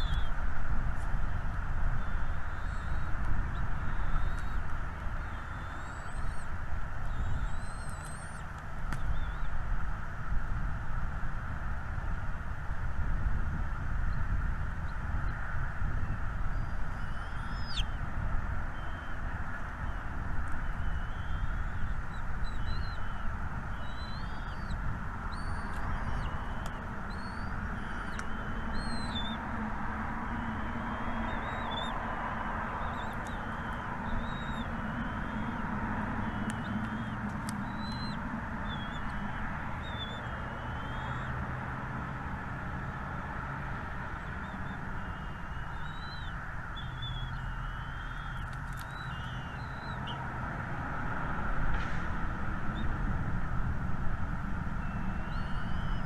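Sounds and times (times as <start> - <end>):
small birds chirping: 0.0 - 0.4, 2.0 - 9.6, 16.0 - 18.0, 18.7 - 41.4, 44.0 - 50.2, 54.8 - 56.0.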